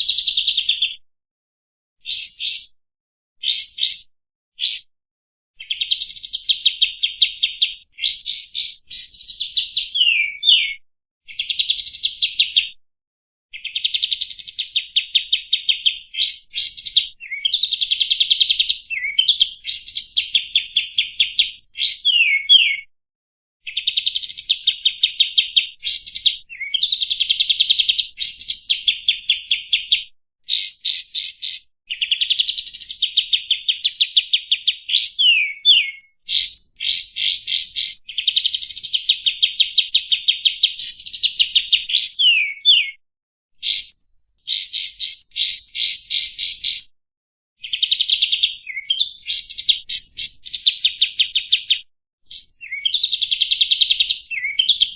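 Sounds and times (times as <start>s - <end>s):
bulbul singing: 2.1s - 2.7s, 3.4s - 4.9s, 5.6s - 10.7s, 14.1s - 17.8s, 30.5s - 31.7s, 34.9s - 43.0s, 43.6s - 46.9s, 47.6s - 51.6s, 52.3s - 53.2s.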